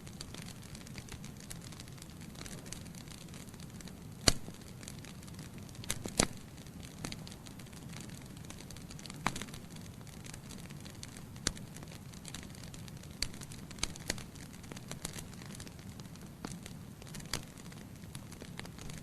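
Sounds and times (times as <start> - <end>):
logs crackling and popping: 0.0 - 19.0
low rumble of flames: 0.0 - 19.0.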